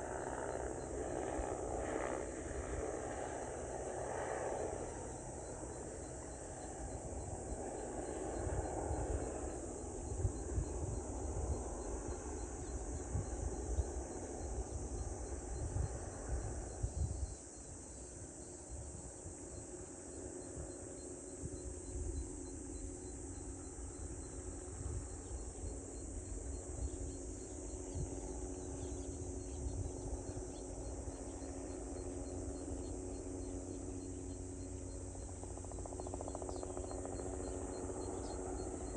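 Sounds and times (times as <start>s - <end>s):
insects chorus: 0.0s - 38.9s
wind on microphone: 6.9s - 32.5s.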